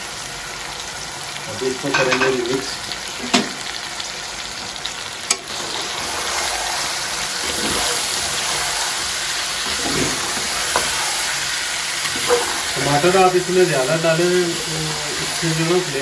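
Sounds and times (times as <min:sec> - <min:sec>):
food sizzling in a pot: 0:00.0 - 0:16.0.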